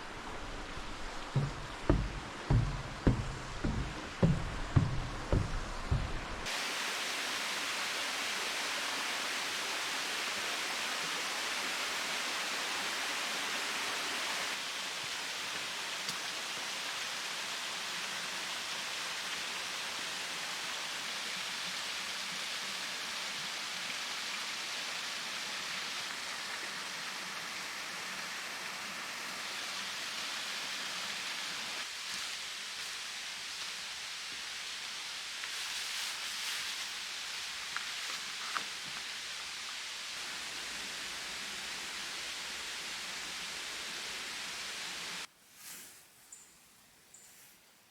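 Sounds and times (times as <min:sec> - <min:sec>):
mountain stream rushing: 0:00.0 - 0:45.3.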